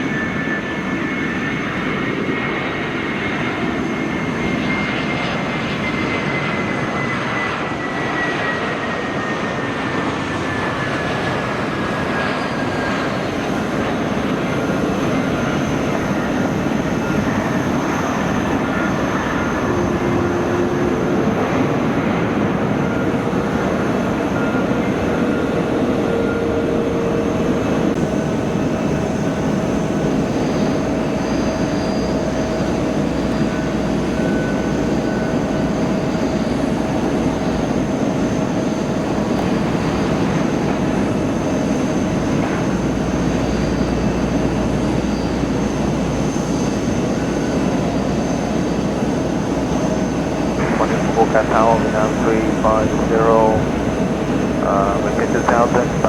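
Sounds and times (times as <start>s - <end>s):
jet engines running: 0.0s - 56.0s.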